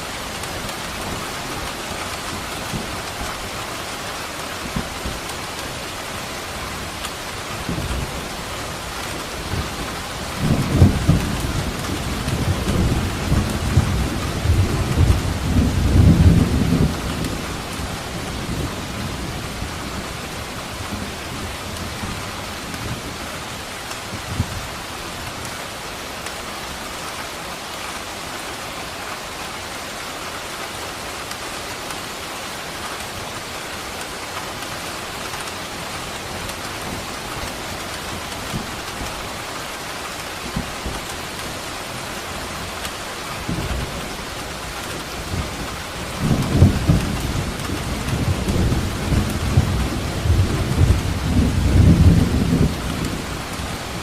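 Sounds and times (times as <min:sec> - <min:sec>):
heavy rain: 0:00.0 - 0:54.0
rolling thunder: 0:09.5 - 0:20.1, 0:44.9 - 0:54.0.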